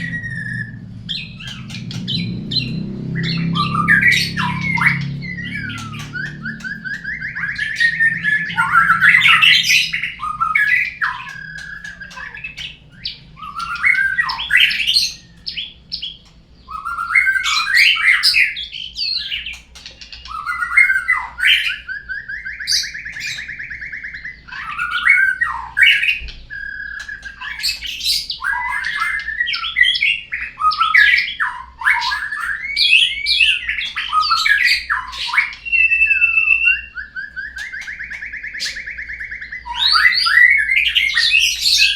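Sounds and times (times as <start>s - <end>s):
bird song trills and whistles: 0.0s - 41.9s.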